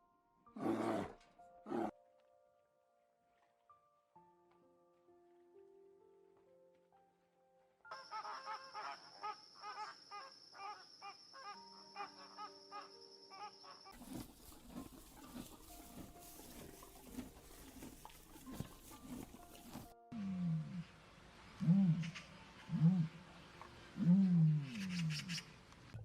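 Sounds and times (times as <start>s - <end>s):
faint background music: 0.0s - 26.0s
rapid repeated animal calls: 24.2s - 25.5s.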